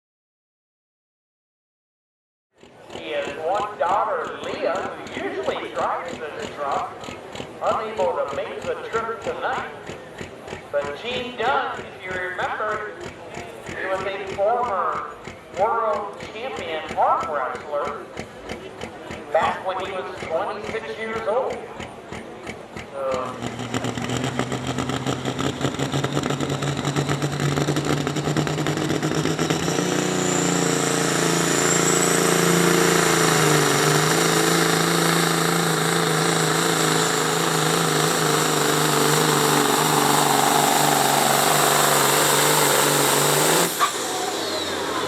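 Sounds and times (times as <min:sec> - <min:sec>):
truck engine at high revs: 0:02.6 - 0:45.0
high whine: 0:24.4 - 0:45.0.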